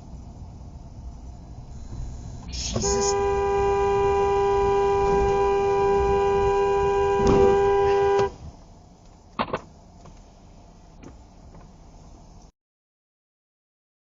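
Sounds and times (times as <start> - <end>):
car horn blast: 2.7 - 8.4.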